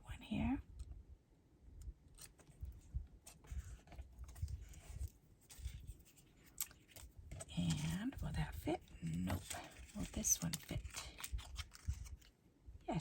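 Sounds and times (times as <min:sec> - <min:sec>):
paper strips rustling and tapping: 0:03.3 - 0:08.2, 0:09.0 - 0:12.3.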